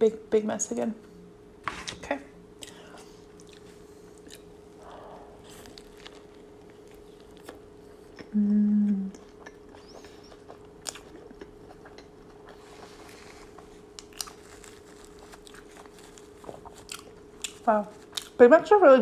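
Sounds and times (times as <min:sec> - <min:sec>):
close-miked chewing: 0:02.6 - 0:18.4
person humming mm: 0:08.2 - 0:09.2.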